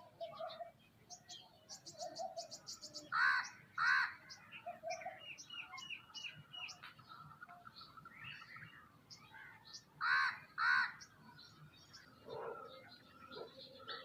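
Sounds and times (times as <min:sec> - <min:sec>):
birds chirping: 0:00.0 - 0:14.0
loud harsh bird calls: 0:01.7 - 0:06.1, 0:07.8 - 0:14.0.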